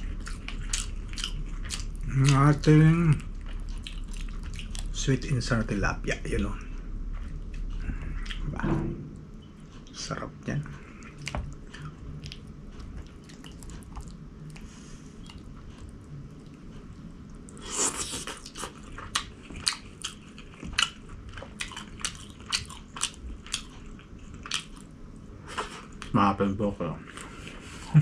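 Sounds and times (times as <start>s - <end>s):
person biting and chewing food: 0.0s - 5.0s, 17.5s - 24.9s.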